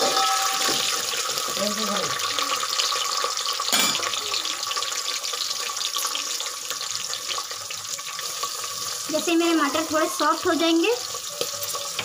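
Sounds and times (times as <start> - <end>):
peas sizzling in hot oil: 0.0 - 12.0
knock on pot: 3.7 - 4.0.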